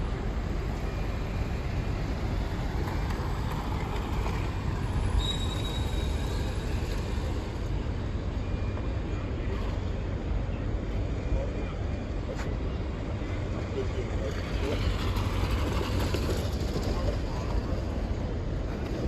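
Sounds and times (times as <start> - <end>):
train wheels rumbling: 12.9 - 19.0.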